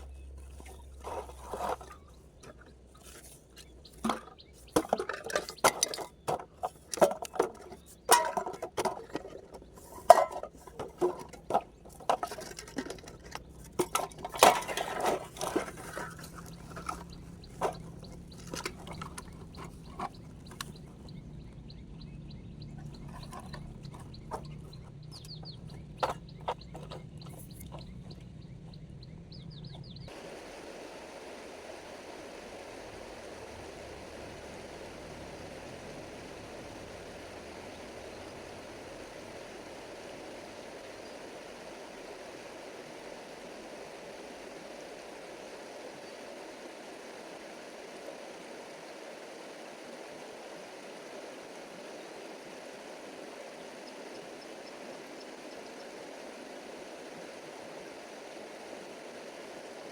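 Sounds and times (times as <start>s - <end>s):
clatter of objects being handled: 0.5s - 21.1s
stream water flowing: 30.1s - 59.9s.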